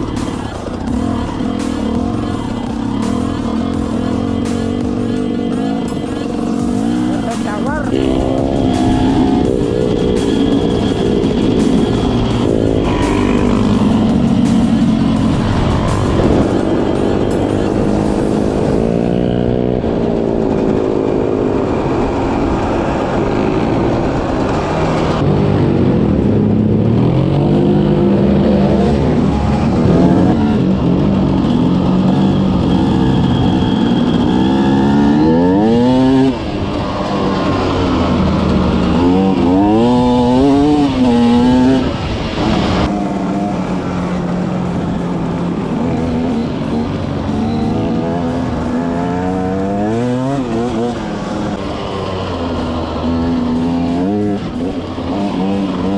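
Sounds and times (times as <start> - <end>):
off-road vehicle engine revving: 0.0 - 55.9.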